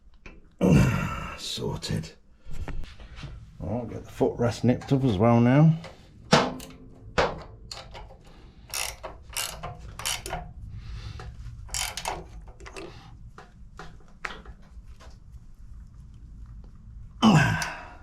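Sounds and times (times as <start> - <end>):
ratchet spanner clicking: 7.4 - 10.6, 11.2 - 13.0.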